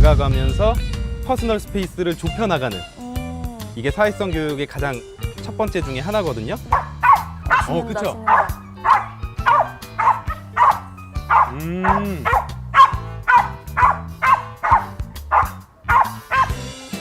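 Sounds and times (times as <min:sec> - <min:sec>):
background music: 0:00.0 - 0:17.0
dog whining: 0:06.7 - 0:16.6
dog barking: 0:06.7 - 0:16.7.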